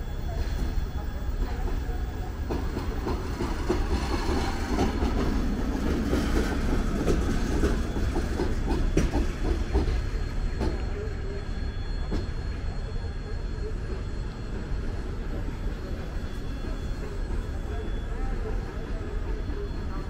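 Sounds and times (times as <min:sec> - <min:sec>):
train coaches rumbling: 0:00.0 - 0:20.0
wheels clacking over rail joints: 0:02.4 - 0:10.9.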